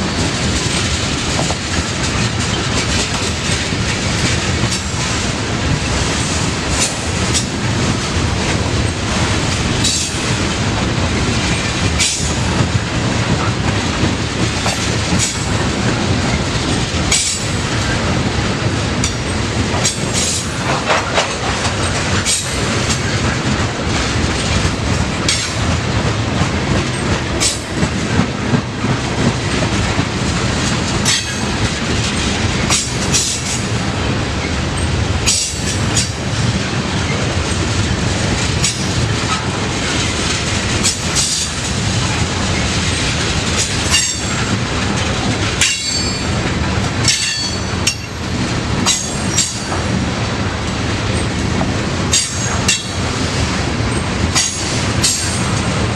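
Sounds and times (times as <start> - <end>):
freight train rumble: 0.0 - 55.9
train wheels clacking over rail joints: 0.0 - 55.9.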